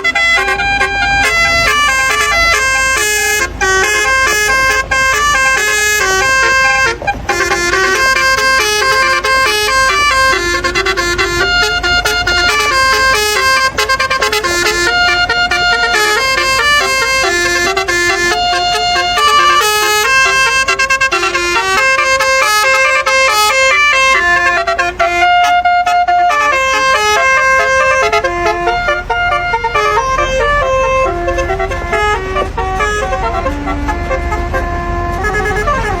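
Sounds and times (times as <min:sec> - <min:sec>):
musical truck horn melody: 0:00.0 - 0:36.0.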